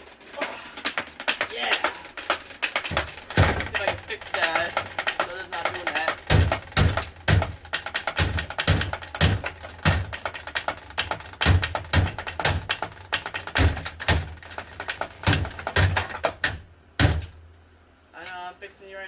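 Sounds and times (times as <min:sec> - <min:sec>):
fan blades clattering against grille: 0:00.0 - 0:17.4.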